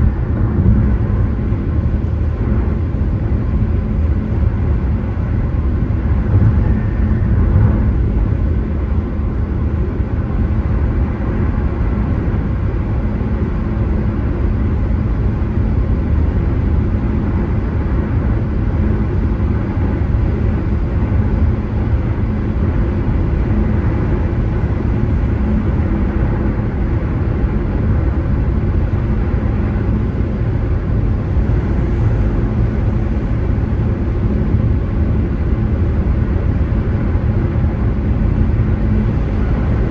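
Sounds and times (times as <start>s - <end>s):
car engine: 0.0s - 4.4s
tyre and road noise: 0.0s - 9.2s.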